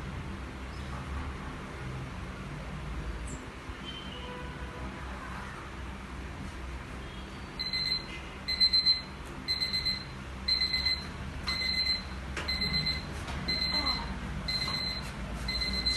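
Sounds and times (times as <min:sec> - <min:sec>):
alarm clock beeping: 0:07.6 - 0:15.9.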